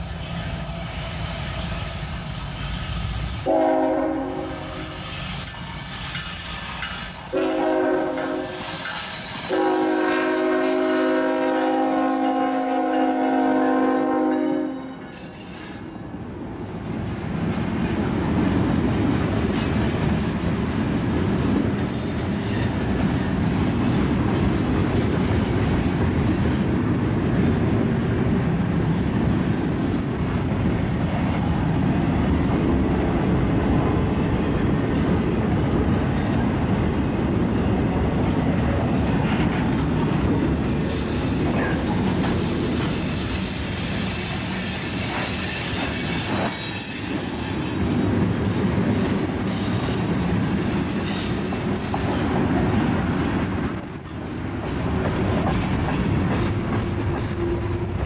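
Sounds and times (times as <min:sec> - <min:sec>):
steel wheels rumbling on rail: 0:00.0 - 0:58.0
locomotive horn chord: 0:03.4 - 0:05.0, 0:07.3 - 0:08.6, 0:09.5 - 0:15.0
faint wheel squeals: 0:18.9 - 0:20.9, 0:21.7 - 0:23.7.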